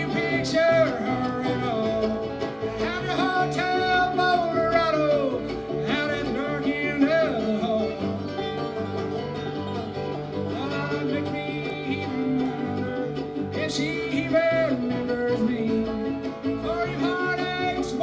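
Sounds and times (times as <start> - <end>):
bluegrass band playing: 0.0 - 18.0
lead string instrument sliding: 0.0 - 18.0.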